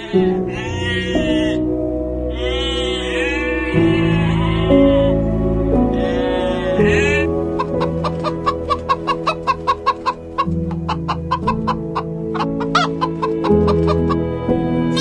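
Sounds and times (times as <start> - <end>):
bird clucking: 0.0 - 1.6, 6.0 - 14.3
background music: 0.0 - 15.0.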